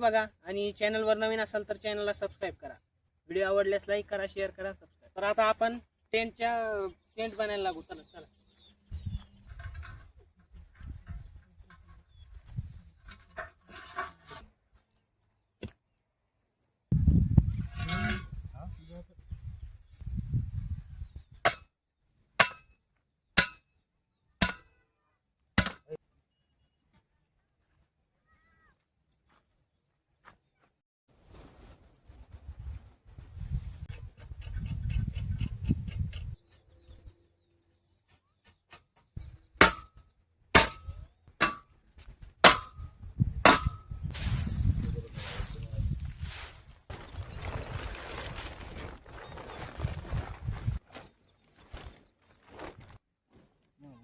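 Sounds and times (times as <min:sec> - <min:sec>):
hammer striking metal tent peg: 0:22.4 - 0:22.7, 0:23.4 - 0:23.6, 0:24.4 - 0:24.7, 0:25.6 - 0:25.9, 0:39.6 - 0:40.0, 0:40.6 - 0:41.7, 0:42.4 - 0:42.9, 0:43.5 - 0:43.9.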